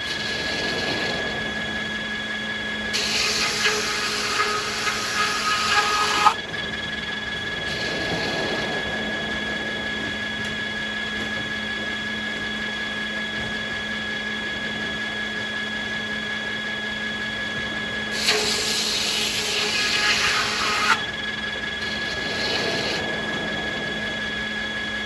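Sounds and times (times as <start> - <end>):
saw cutting wood: 0.0 - 1.1, 2.9 - 6.4, 18.1 - 23.3
sawmill machinery humming: 0.0 - 25.0.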